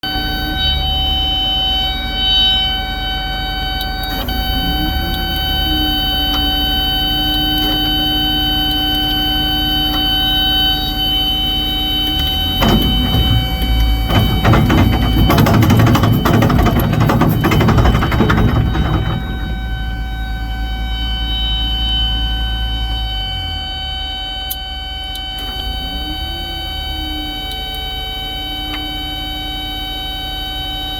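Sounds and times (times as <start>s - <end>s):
rough excavator working noise: 0.0s - 22.3s
excavator engine humming: 0.0s - 30.7s
excavator whine: 0.0s - 30.9s.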